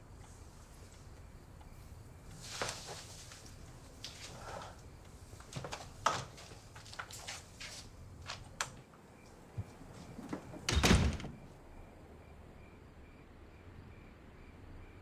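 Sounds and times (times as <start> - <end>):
faint cricket chirping: 0.0 - 15.0
heavy door shutting: 10.2 - 11.5.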